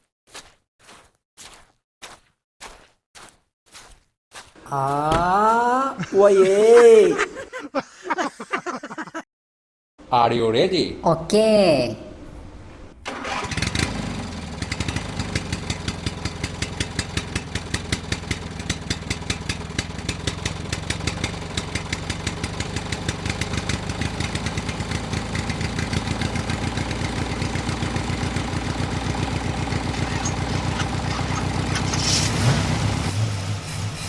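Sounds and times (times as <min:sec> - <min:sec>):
small engine chugging: 0:13.1 - 0:33.0.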